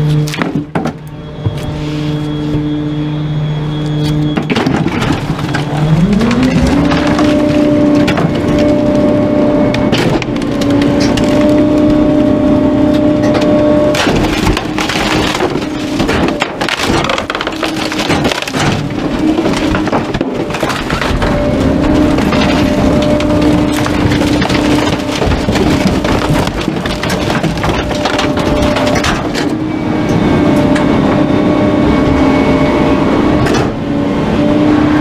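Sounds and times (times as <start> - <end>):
garbage truck engine revving: 0.0 - 35.0
wood cracking and splintering: 4.4 - 29.7.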